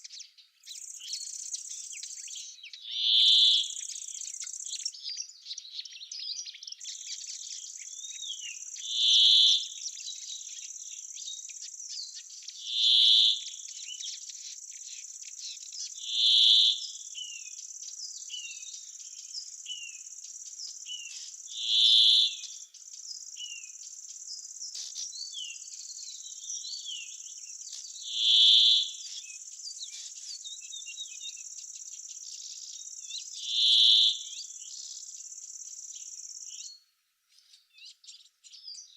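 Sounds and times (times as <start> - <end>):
bird chirps and twitters: 0.0 - 38.9
high insect trill: 27.1 - 36.6.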